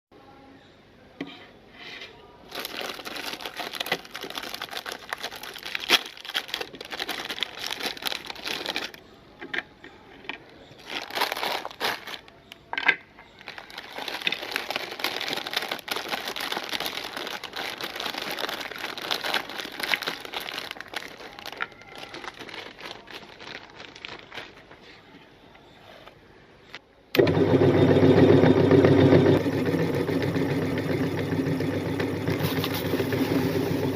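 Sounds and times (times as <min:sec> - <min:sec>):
crinkling and crackling with clicks: 0:02.5 - 0:25.3
electric meat grinder humming: 0:27.2 - 0:33.9.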